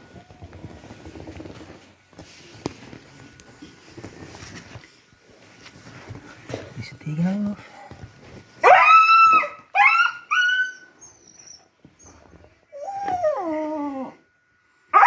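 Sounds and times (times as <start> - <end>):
dog whining: 8.6 - 14.3.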